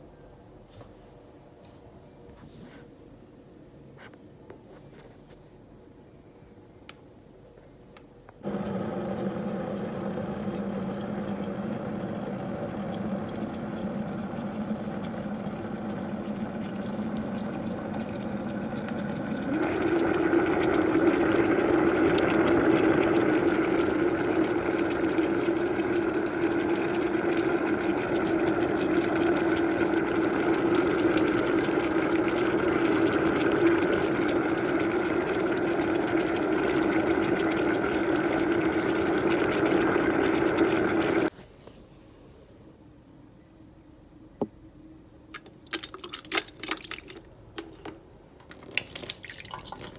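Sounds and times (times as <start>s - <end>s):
electric kettle humming: 8.4s - 41.3s.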